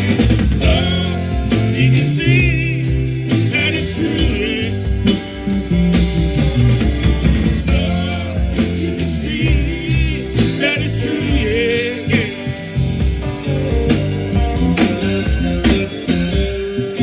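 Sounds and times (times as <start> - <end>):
person singing with vibrato: 0.0 - 5.5, 7.6 - 13.1
bass: 0.0 - 17.0
drums: 0.0 - 17.0
guitar: 0.0 - 17.0.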